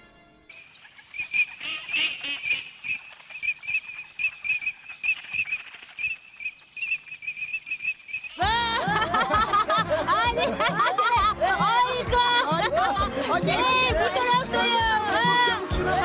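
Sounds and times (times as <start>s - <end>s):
birds chirping: 0.0s - 9.9s
music: 8.4s - 16.0s.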